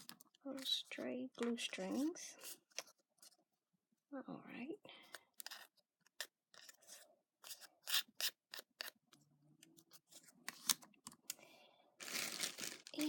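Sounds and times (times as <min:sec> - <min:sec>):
snipping and rubbing paper: 0:05.4 - 0:09.0.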